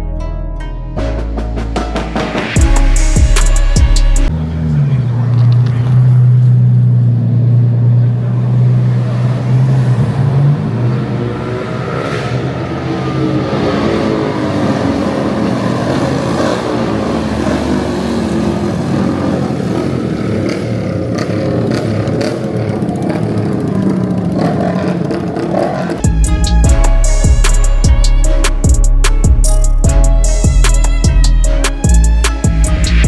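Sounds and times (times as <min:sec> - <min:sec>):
music with drum beat: 0:01.0 - 0:04.3, 0:26.0 - 0:33.0
car engine revving: 0:01.4 - 0:33.0.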